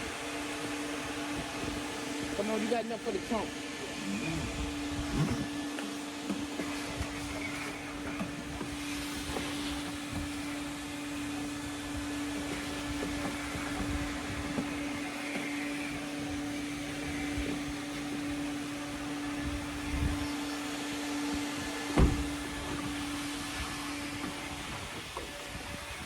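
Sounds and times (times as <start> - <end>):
vacuum cleaner whining: 0.0 - 26.0
nozzle knocks: 22.0 - 22.4.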